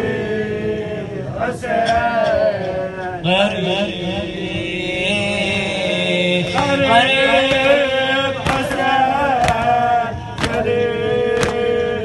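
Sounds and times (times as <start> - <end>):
sustained backing drone: 0.0 - 12.0
man singing mourning chant: 1.1 - 12.0
sharp rhythmic strikes: 4.6 - 12.0.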